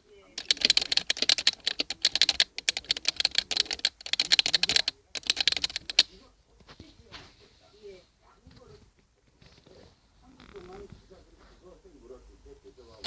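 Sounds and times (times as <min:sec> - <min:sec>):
fast typing key clicks: 0:00.4 - 0:06.1.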